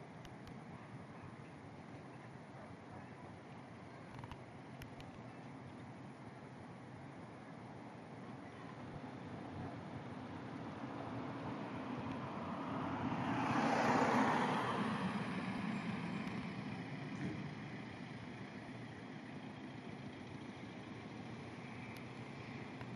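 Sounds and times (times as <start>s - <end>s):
vehicle passing by: 11.0s - 17.8s.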